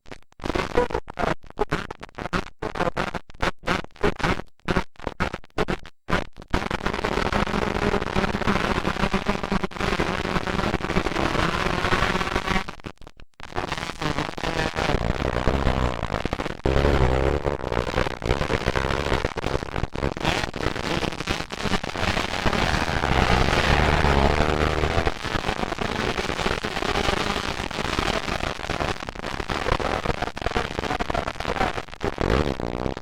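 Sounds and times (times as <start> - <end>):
popping exhaust: 21.8 - 25.3
motocross bikes revving: 22.4 - 25.2.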